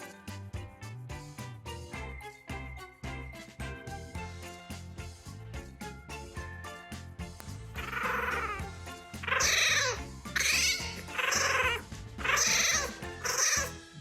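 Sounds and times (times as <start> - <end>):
background music: 0.0 - 14.0
animal high drawn-out calls: 7.8 - 13.8.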